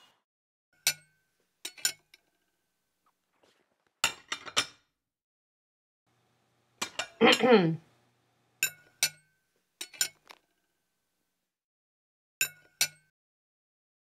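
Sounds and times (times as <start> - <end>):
cutlery clinking on china plates: 0.8 - 2.3, 6.8 - 7.5, 8.6 - 10.4, 12.4 - 13.1.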